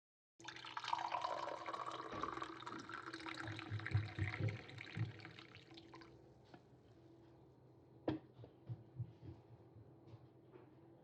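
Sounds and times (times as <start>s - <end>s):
water running from a tap: 0.4s - 6.1s.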